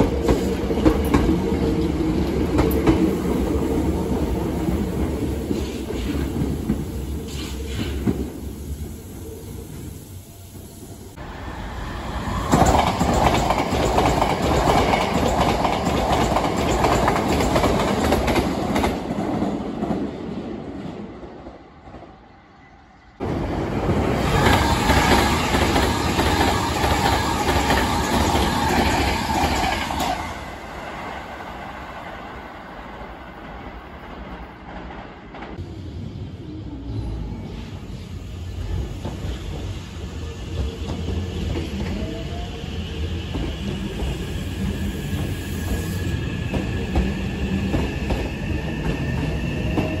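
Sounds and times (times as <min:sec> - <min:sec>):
train rumble: 0:00.0 - 0:22.2, 0:23.2 - 0:50.0
trains passing at speed: 0:00.0 - 0:50.0.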